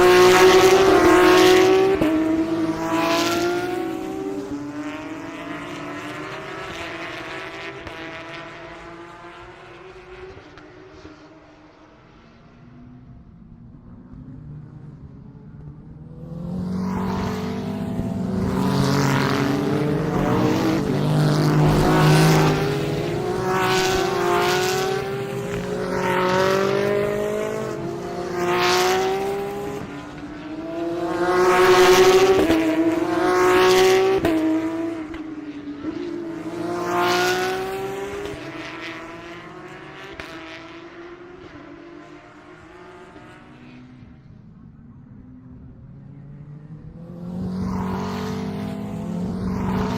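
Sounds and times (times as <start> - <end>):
race cars accelerating past: 0.0 - 49.9.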